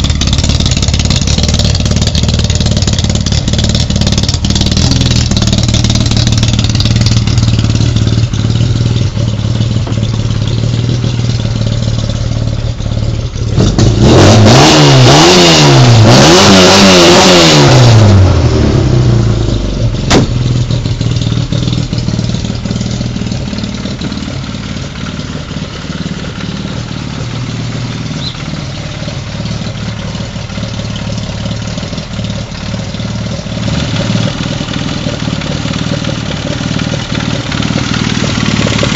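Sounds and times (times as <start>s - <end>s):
car engine revving: 0.0s - 38.9s
sharp click: 20.1s - 20.4s.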